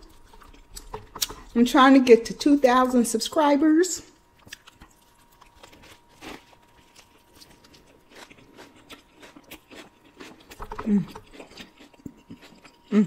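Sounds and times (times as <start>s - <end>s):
crunching while eating: 0.0s - 1.6s, 4.2s - 13.0s.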